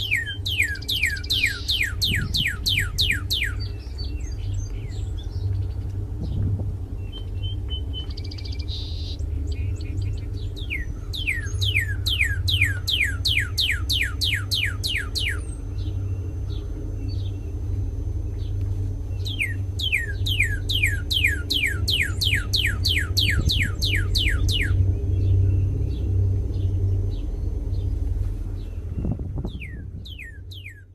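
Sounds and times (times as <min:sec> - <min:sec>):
bird singing whistles: 0:00.0 - 0:05.5, 0:07.0 - 0:16.0, 0:19.2 - 0:25.6, 0:29.0 - 0:30.9
steady low hum: 0:00.0 - 0:30.9.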